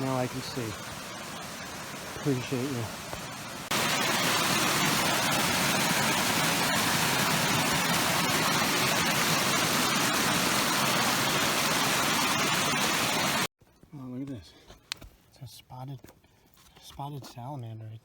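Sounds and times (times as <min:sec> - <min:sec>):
stream water rushing: 0:00.0 - 0:13.5.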